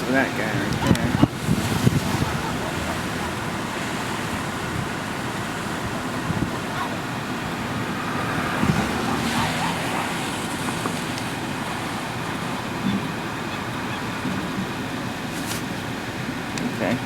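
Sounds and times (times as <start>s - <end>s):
car engine: 0.0s - 17.0s
tyres on road: 0.0s - 17.0s.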